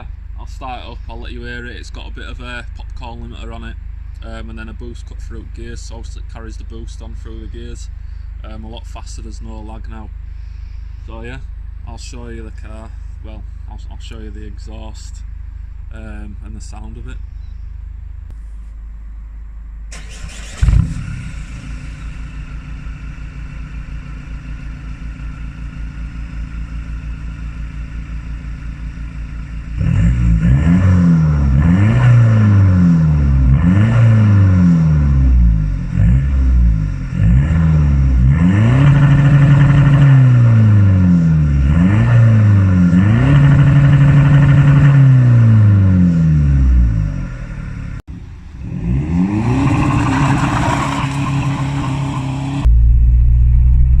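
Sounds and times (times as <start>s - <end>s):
diesel engine idling and revving: 19.9s - 54.0s.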